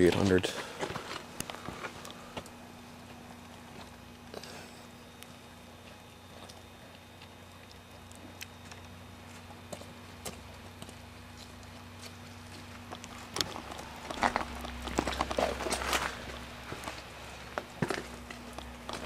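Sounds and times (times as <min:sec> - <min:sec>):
footsteps crunching on ground: 0:00.0 - 0:04.1, 0:05.4 - 0:19.0
faint steady hum: 0:00.0 - 0:19.0.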